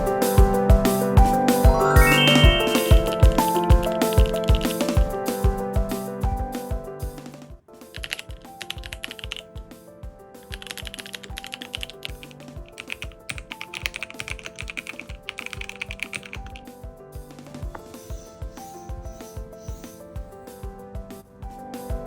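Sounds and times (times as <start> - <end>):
mechanical keyboard typing: 2.6 - 4.9, 7.9 - 9.6, 10.4 - 16.7.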